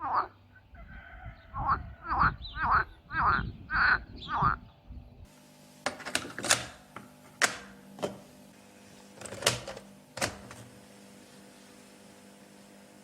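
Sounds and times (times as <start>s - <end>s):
sharp clicks or knocks: 5.9s - 8.2s.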